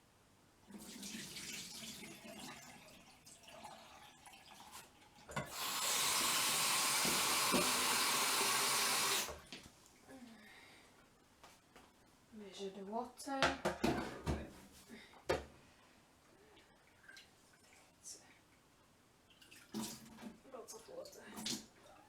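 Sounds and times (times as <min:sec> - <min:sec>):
water sloshing in a pan: 0:00.7 - 0:05.6, 0:19.2 - 0:22.0
kitchen tap running into a pan: 0:00.7 - 0:09.4.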